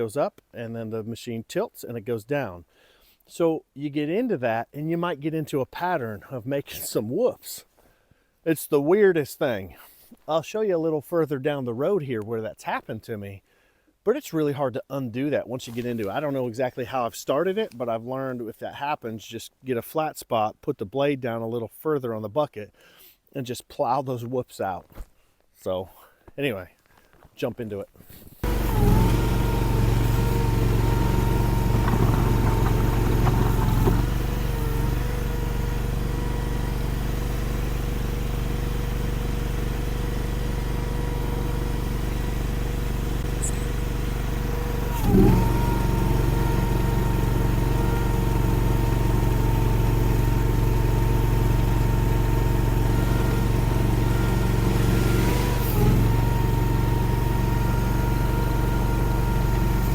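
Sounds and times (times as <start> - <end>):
steady whine: 28.4 - 34.9
skid steer engine running: 28.4 - 59.9.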